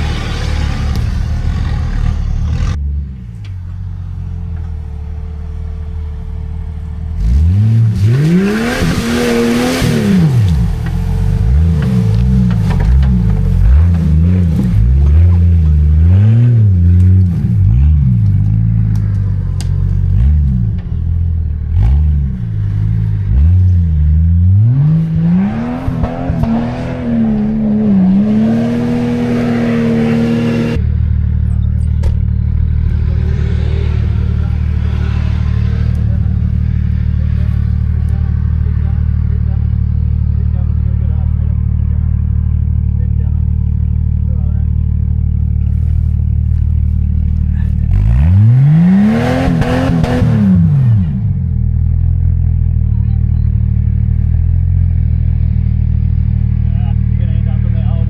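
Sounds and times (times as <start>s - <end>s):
engine revving: 0.0s - 3.7s, 4.3s - 58.0s
low steady engine note: 0.0s - 8.0s, 30.6s - 48.6s, 50.5s - 58.0s.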